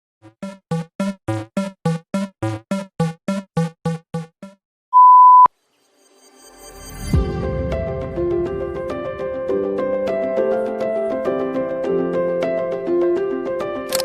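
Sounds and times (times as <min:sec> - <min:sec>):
steady electronic beep: 0:05.0 - 0:07.1
background music: 0:06.5 - 0:14.0.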